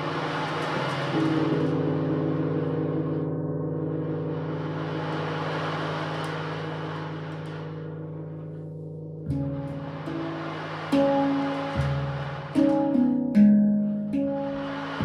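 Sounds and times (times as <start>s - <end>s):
gong stroke: 9.3s - 15.0s
gongs ringing: 9.3s - 15.0s.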